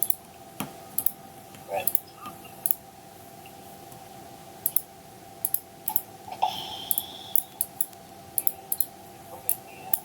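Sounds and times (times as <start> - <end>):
faint steady hum: 0.0 - 10.0
mouse and keyboard clicks: 6.9 - 8.9.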